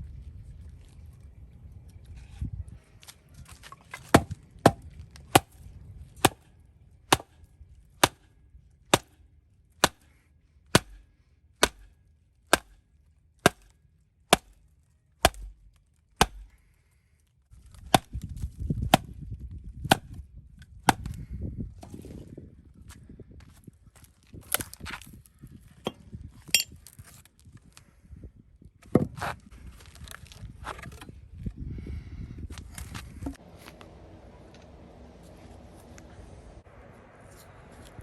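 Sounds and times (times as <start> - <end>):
axe chopping wood: 4.0 - 5.6, 6.2 - 6.5, 7.1 - 7.4, 8.0 - 8.3, 8.9 - 9.2, 9.8 - 12.8, 13.4 - 14.6, 15.2 - 16.6, 17.8 - 19.1, 19.8 - 20.2, 20.9 - 21.2.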